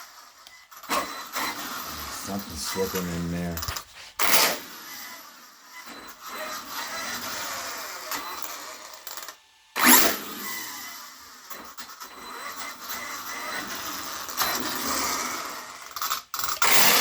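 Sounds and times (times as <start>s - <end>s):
toy truck motor whirring: 0.0s - 17.0s
differential slipping: 1.8s - 4.2s.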